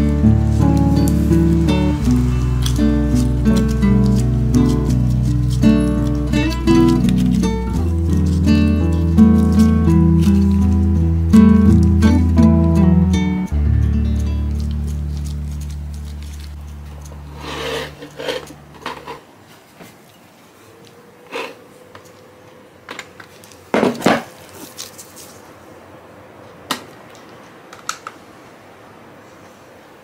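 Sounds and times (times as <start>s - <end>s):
background music: 0.0s - 18.3s.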